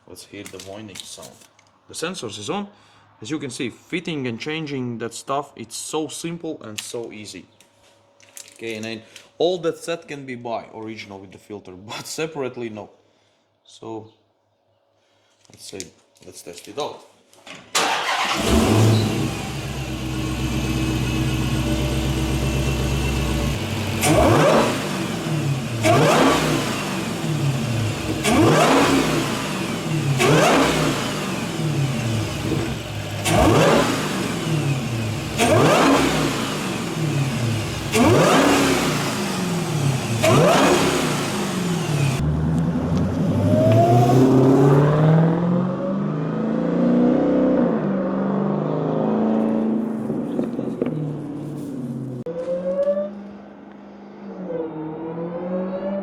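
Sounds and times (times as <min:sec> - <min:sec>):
car engine idling and revving: 0:17.8 - 0:56.0
supercharger whine: 0:18.1 - 0:46.5.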